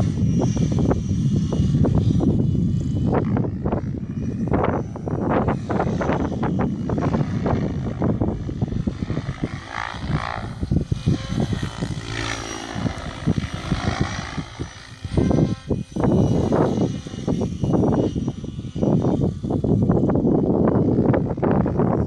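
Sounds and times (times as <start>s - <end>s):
model helicopter rotors whining: 0.0s - 22.0s.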